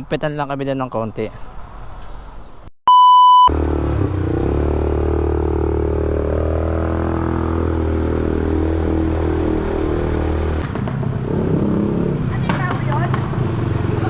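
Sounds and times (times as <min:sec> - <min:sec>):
short beep: 0:02.9 - 0:03.5
atv engine running: 0:03.5 - 0:14.0.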